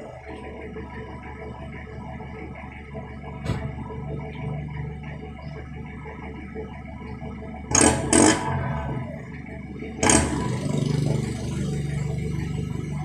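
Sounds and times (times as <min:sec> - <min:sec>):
engine throbbing idle: 0:00.0 - 0:13.0
engine revving: 0:07.6 - 0:13.0.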